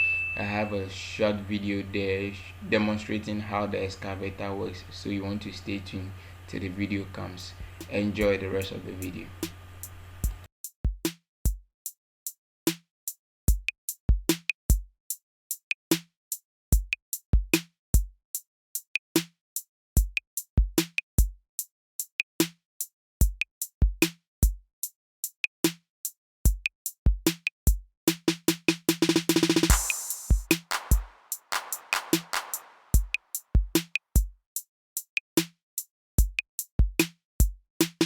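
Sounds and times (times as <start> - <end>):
drum machine beat: 7.6 - 11.6, 13.5 - 14.9, 16.7 - 18.1, 20.0 - 21.4, 23.2 - 24.6, 26.5 - 34.4, 35.4 - 35.6, 36.2 - 38.0.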